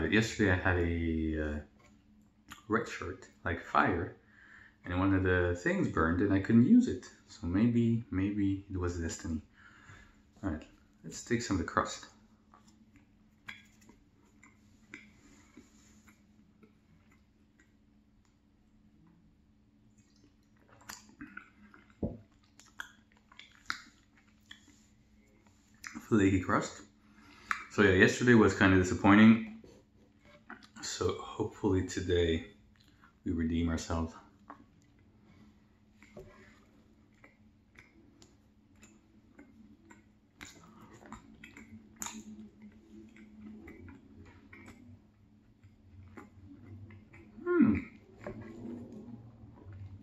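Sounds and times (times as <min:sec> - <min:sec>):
chewing flaky pastry: 0:11.8 - 0:50.0.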